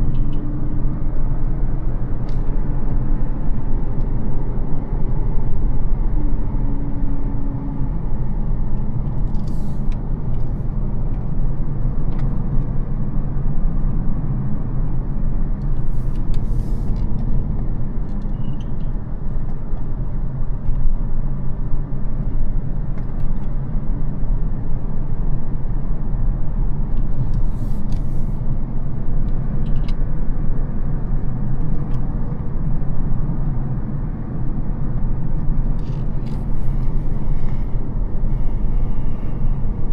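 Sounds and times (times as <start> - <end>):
car engine low rumble: 0.0 - 39.9
tyre and road noise: 0.0 - 39.9.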